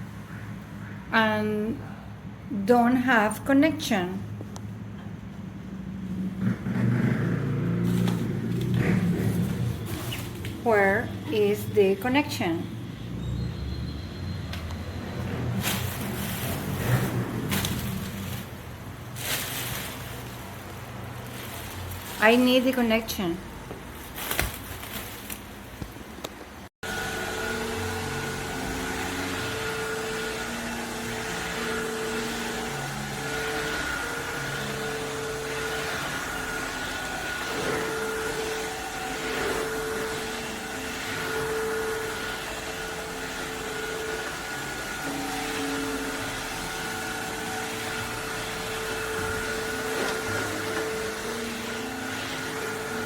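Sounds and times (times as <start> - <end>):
vacuum cleaner running: 5.5 - 24.3, 26.8 - 53.0
small electric motor whirring: 26.9 - 53.0.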